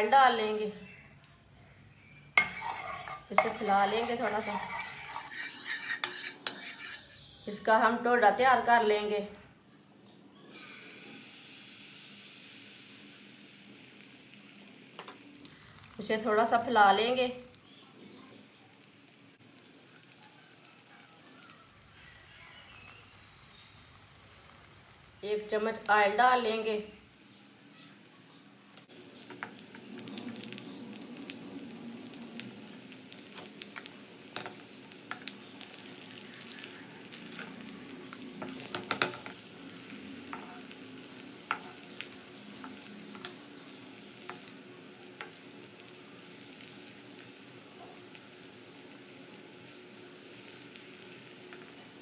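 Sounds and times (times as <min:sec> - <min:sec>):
oil sizzling and crackling: 0:00.0 - 0:09.4, 0:10.5 - 0:52.0
spatula scraping pan: 0:01.5 - 0:07.4, 0:33.3 - 0:44.6.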